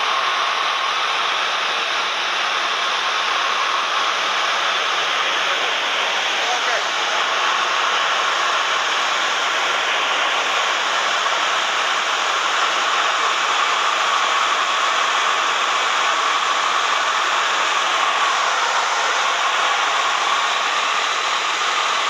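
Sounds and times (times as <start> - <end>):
airflow around cabin: 0.0 - 22.0.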